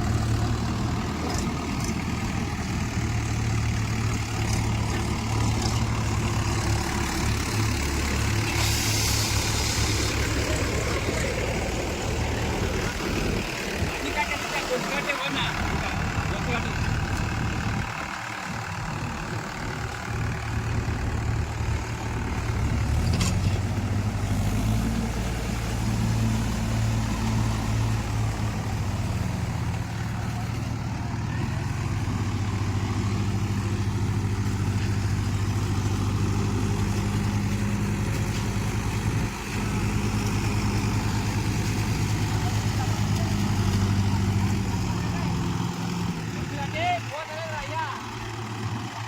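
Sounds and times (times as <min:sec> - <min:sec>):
tractor diesel engine running: 0:00.0 - 0:49.0.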